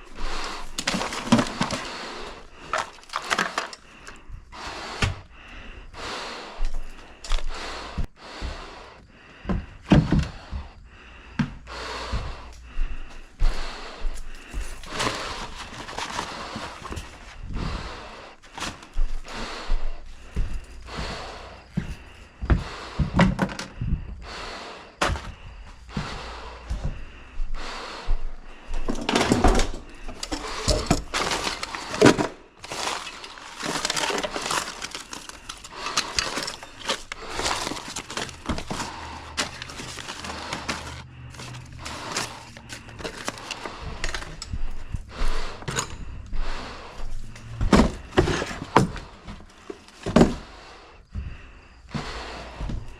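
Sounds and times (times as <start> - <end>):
knocks thuds and clatters: 9.4 - 10.8, 28.8 - 41.0, 47.4 - 50.5
scraping or rustling: 14.6 - 17.4, 29.0 - 44.5.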